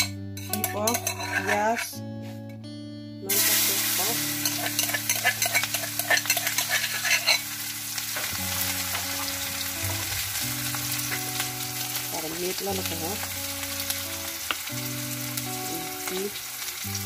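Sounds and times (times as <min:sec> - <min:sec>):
metal spoon scraping a wok: 0:00.0 - 0:02.0, 0:03.3 - 0:07.6
onion sizzling in hot oil: 0:00.9 - 0:01.9, 0:03.3 - 0:17.0.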